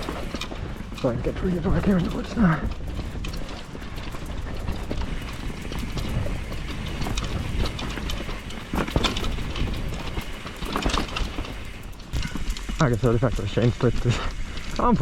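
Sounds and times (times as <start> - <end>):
bike clattering over roots: 0.0 - 15.0
bike tyres rolling rumble: 0.0 - 15.0.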